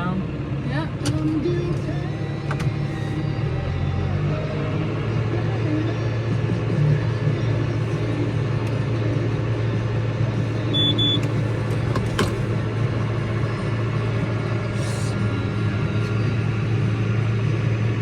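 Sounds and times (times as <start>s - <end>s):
tractor engine humming: 0.0s - 6.6s, 7.3s - 18.0s
short high beeps: 10.7s - 11.2s.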